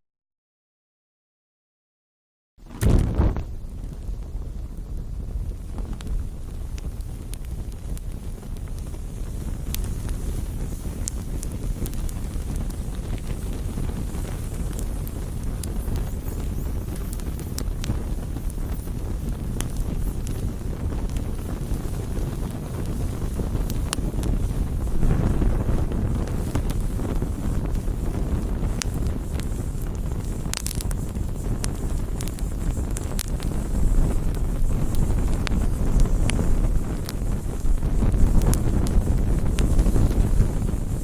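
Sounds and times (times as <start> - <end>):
campfire crackling and popping: 2.6 - 41.0
low fire rumble: 2.6 - 41.0.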